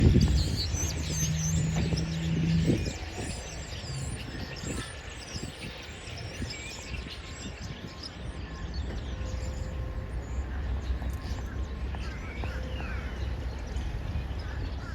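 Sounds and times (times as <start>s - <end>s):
low rumble: 0.0s - 4.8s
flock of birds chirping: 0.0s - 14.9s.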